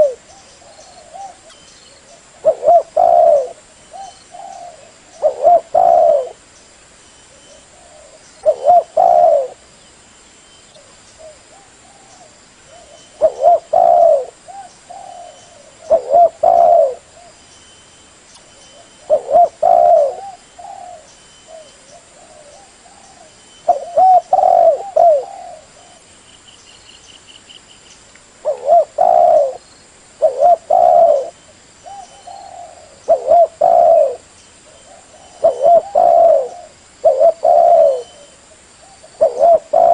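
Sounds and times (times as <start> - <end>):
dove cooing: 0.0 - 6.4, 7.4 - 9.6, 11.2 - 17.4, 18.7 - 26.1, 28.4 - 29.6, 30.2 - 39.9.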